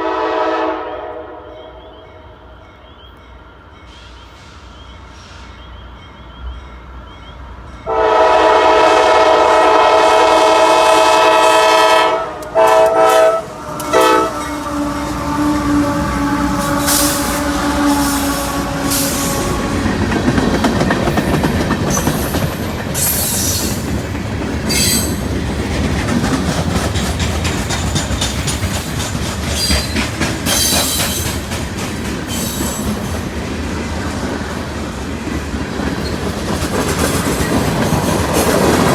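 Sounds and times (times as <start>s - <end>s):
locomotive air horn blasts: 0.0s - 1.5s, 7.9s - 20.0s
train wheels clickety-clack: 12.3s - 38.9s
high wheel squeals: 24.7s - 25.2s.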